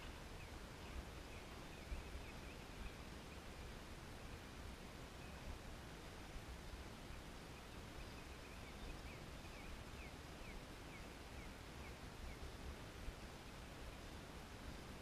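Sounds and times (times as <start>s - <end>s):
bird chirping: 0.0s - 3.5s, 7.1s - 12.5s
faint outdoor hiss: 0.0s - 15.0s.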